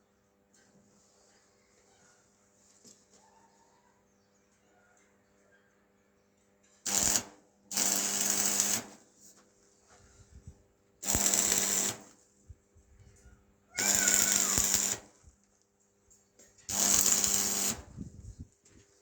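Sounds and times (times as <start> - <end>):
motorised tool running: 6.9 - 9.0, 11.0 - 12.1, 13.8 - 15.1, 16.7 - 18.2.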